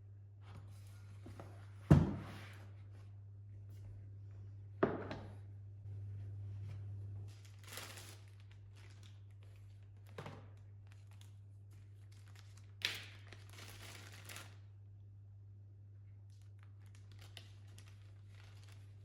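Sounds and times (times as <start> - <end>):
steady low hum: 0.0 - 7.8
faint crinkling and rustling: 6.6 - 14.6, 16.2 - 19.0.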